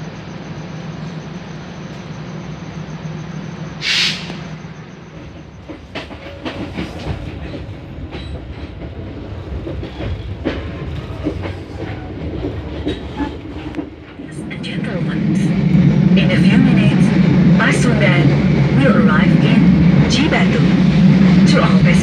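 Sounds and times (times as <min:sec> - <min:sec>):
short loud hiss: 0:03.8 - 0:04.5
train wheels clattering on rail joints: 0:05.1 - 0:14.2.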